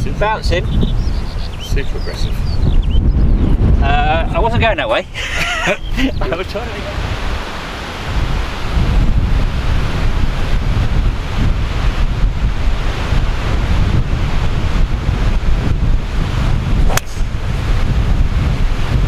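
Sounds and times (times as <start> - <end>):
wind buffeting microphone: 0.0 - 19.0
golf club striking ball: 16.8 - 17.5.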